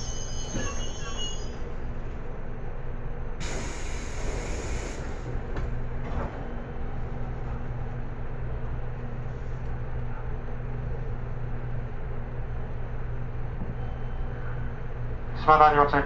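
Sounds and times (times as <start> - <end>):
electric train humming: 0.0 - 16.0
hiss: 3.4 - 5.3.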